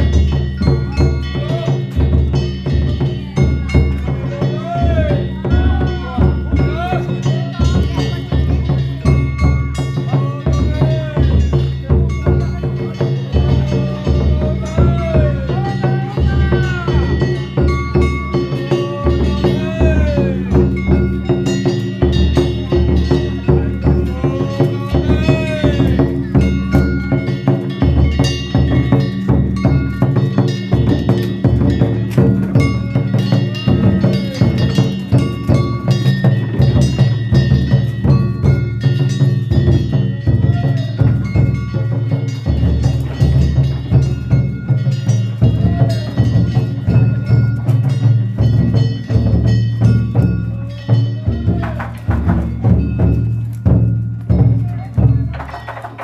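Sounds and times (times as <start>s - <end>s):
large taiko drum: 0.0s - 56.0s
metal gongs ringing: 0.0s - 56.0s.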